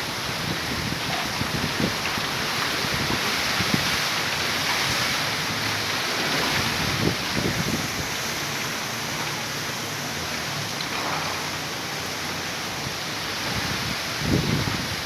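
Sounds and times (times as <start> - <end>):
wind buffeting microphone: 0.0 - 8.8, 12.7 - 15.0
steady rain falling: 0.0 - 15.0.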